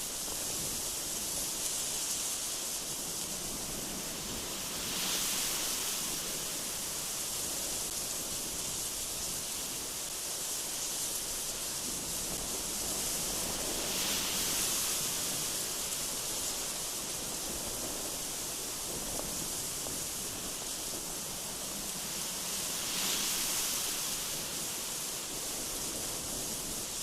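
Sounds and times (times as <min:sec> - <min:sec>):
strong gusty wind: 0:11.2 - 0:27.0.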